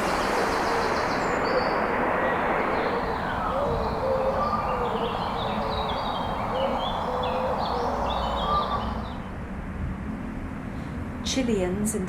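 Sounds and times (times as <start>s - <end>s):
low gliding bird calls: 0.0s - 9.3s
steady background noise: 0.0s - 12.0s.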